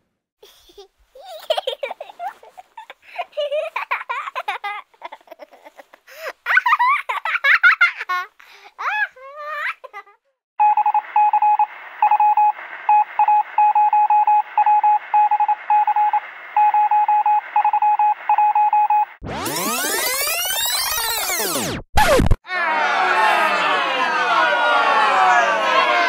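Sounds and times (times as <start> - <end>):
beeping tone pulses: 10.6 - 21.8.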